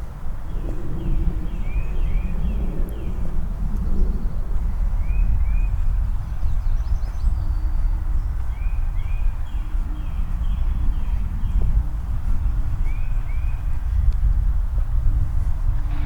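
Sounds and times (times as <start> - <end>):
steady low rumble: 0.1 - 16.0
songbirds singing: 0.5 - 13.9.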